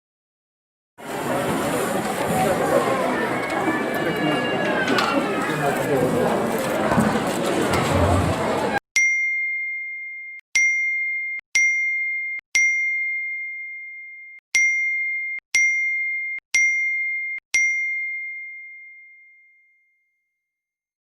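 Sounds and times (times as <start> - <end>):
high bell ding: 9.0 - 20.1.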